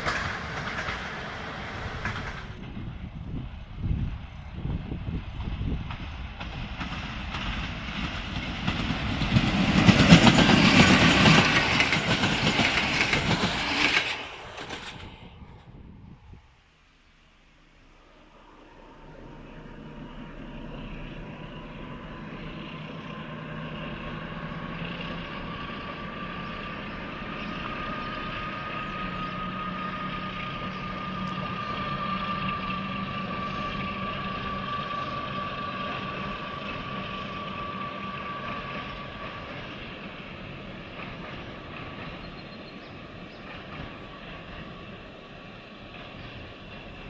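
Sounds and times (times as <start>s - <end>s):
high whine: 14.1s - 35.6s
diesel engine drone: 14.2s - 41.0s.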